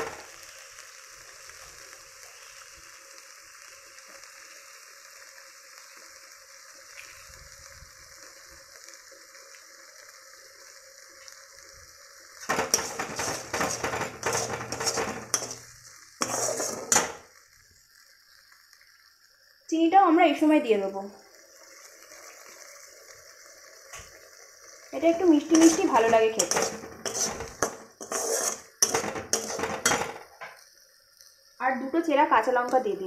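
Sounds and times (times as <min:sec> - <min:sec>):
metal spatula scraping pan: 0:00.0 - 0:00.3, 0:12.4 - 0:17.3, 0:25.0 - 0:30.6
food sizzling in hot oil: 0:00.0 - 0:33.0.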